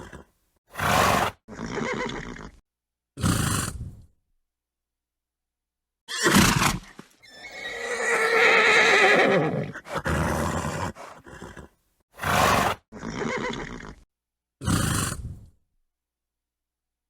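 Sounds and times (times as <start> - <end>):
breathy horse sounds: 0.0 - 0.4, 9.7 - 11.8, 14.6 - 15.6
horse whinnying: 0.0 - 2.6, 6.1 - 14.0.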